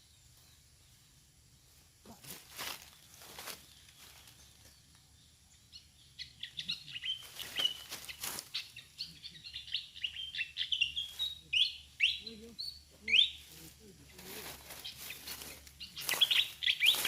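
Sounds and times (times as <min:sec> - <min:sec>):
bird chirping high squeaks: 0:06.9 - 0:13.5, 0:14.7 - 0:17.0.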